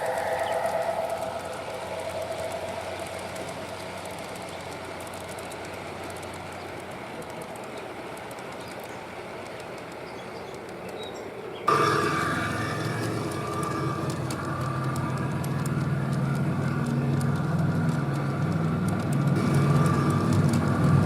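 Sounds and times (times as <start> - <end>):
model train rolling on track: 0.0 - 21.0.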